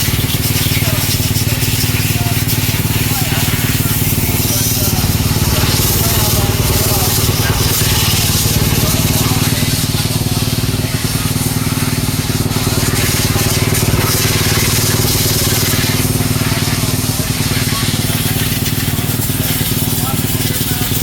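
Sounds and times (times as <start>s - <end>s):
motocross bike engines running: 0.0s - 21.0s
rushing noise: 2.7s - 11.2s.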